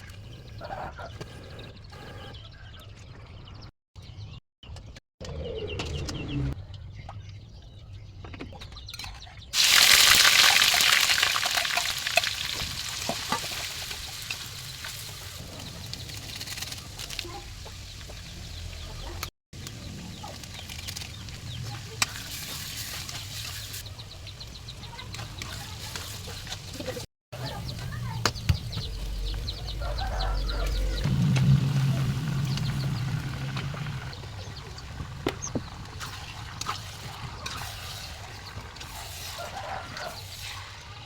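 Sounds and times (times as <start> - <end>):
food sizzling in a hot pan: 9.6 - 15.8.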